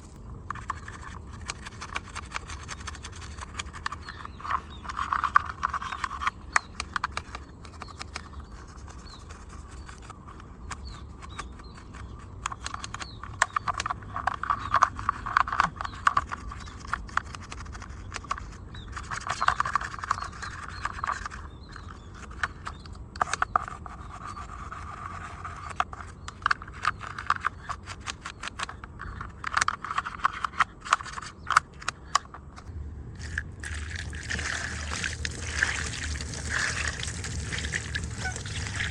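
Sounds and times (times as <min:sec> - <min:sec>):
hands handling model car: 0:00.4 - 0:38.9
rubbing: 0:33.2 - 0:38.9.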